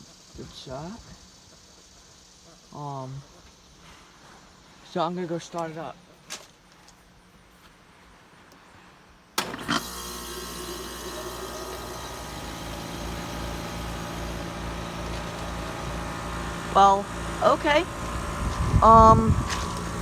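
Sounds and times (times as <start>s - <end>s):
compressor and fan humming: 9.4s - 20.0s
heat pump clunk: 9.4s - 20.0s.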